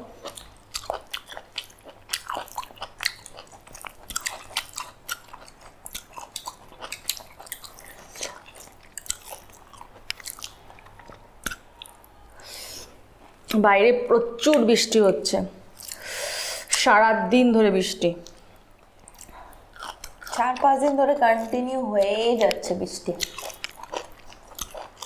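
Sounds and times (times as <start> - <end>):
person chewing crunchy food: 0.0 - 13.5, 15.8 - 16.2, 18.2 - 20.7, 22.4 - 25.0
person breathing: 12.3 - 13.0, 15.9 - 16.7.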